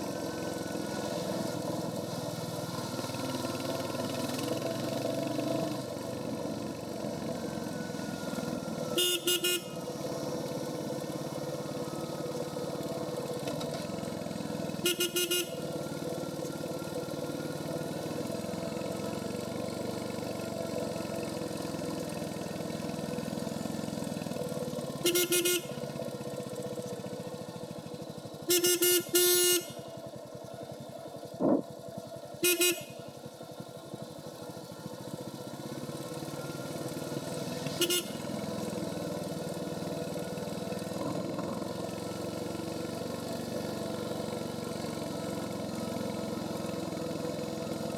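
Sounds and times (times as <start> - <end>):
motorcycle engine running: 0.0 - 47.9
short horn beeps: 8.0 - 10.1, 14.7 - 15.8, 25.0 - 26.0, 28.5 - 30.0, 32.4 - 33.2, 37.7 - 38.6.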